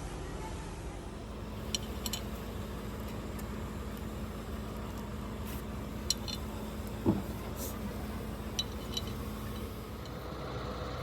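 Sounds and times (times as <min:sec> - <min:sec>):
steady low hum: 0:00.0 - 0:11.0
sharp metallic clicks: 0:06.0 - 0:07.0.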